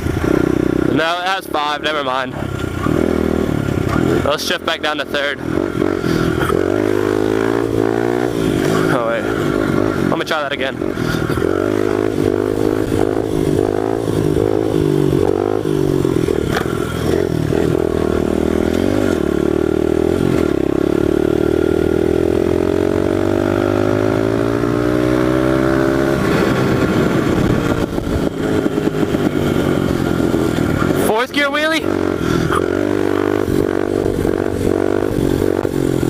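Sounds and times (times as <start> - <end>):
motorbike engine revving: 0.0 - 36.0.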